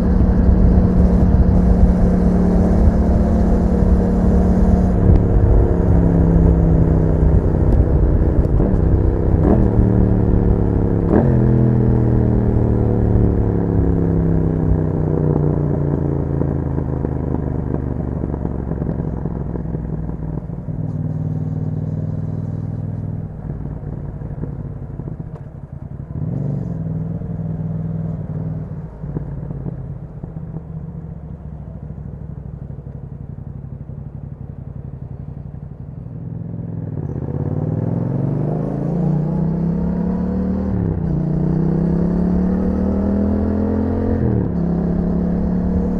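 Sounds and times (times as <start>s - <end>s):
motorcycle engine: 0.0s - 45.9s.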